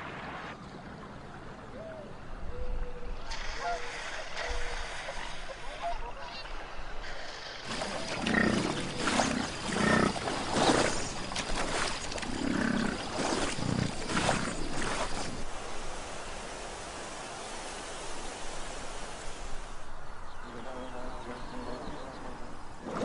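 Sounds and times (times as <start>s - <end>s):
wild animals giving rough calls: 7.6s - 15.4s, 22.8s - 23.0s.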